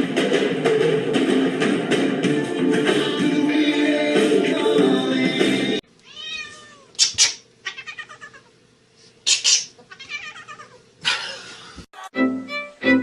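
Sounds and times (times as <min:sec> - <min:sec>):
cat meowing and yowling: 0:06.1 - 0:06.9, 0:07.7 - 0:08.5, 0:09.9 - 0:10.8
music with strings: 0:12.0 - 0:13.0.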